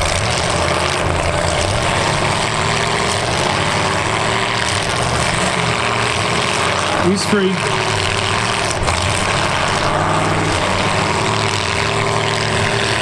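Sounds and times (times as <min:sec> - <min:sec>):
car engines running hard: 0:00.0 - 0:13.0.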